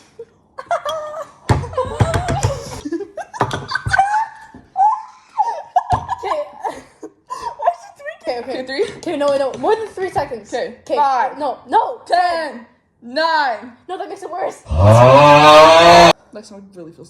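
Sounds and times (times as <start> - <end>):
women laughing and giggling: 0.1 - 9.1.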